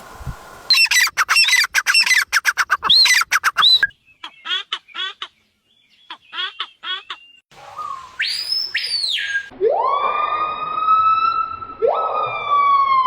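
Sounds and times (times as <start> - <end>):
bird calls: 0.7 - 9.5.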